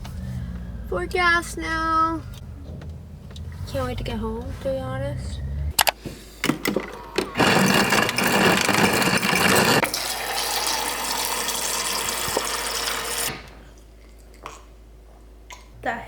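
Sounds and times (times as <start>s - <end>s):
gasoline flowing into tank: 6.4s - 14.3s.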